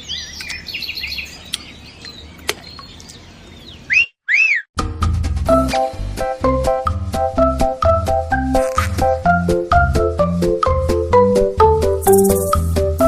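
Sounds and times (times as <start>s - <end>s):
birds chirping and singing: 0.0s - 4.7s, 12.0s - 12.9s
upbeat music with steady beat: 4.9s - 13.0s.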